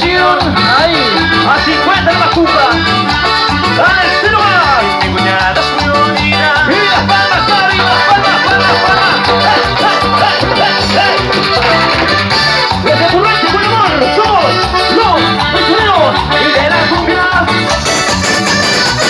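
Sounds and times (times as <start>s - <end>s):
cumbia band playing: 0.0s - 19.0s.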